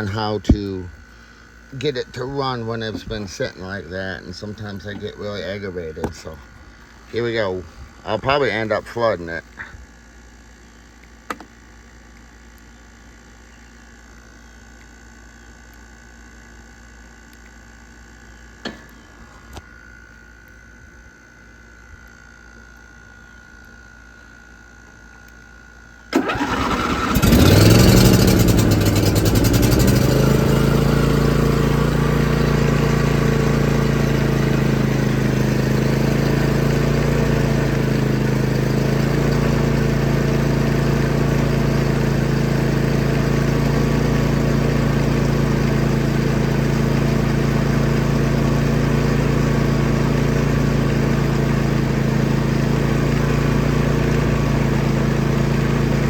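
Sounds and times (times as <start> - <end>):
tractor engine running: 0.0 - 9.7, 26.1 - 56.0
starter motor cranking: 26.1 - 56.0.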